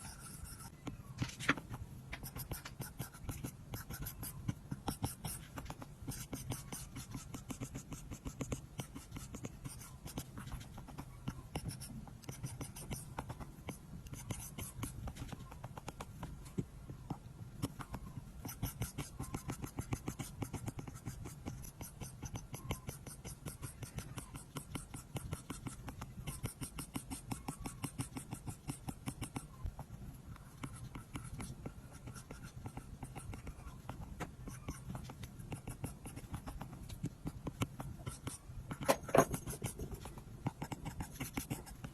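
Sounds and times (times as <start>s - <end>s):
stylus tapping and scratching on glass: 31.0s - 41.9s.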